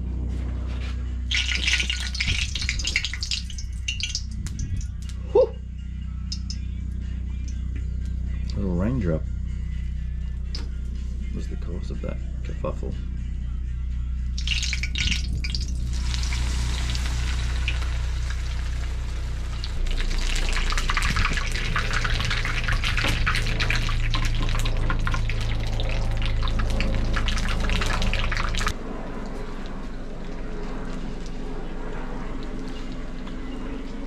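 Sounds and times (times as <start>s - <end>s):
steady low hum: 0.0s - 34.0s
chicken sizzling in hot oil: 14.4s - 24.6s.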